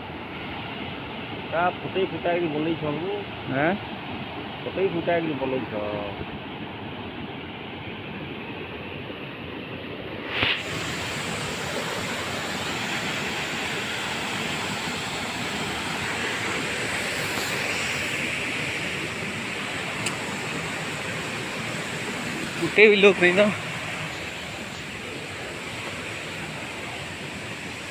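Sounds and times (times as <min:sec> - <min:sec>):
waterfall rushing: 0:10.3 - 0:27.9.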